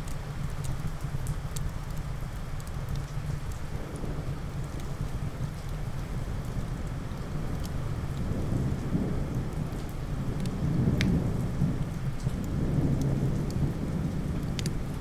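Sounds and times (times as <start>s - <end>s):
steady rain: 0.0s - 15.0s
rolling thunder rumble: 3.8s - 15.0s.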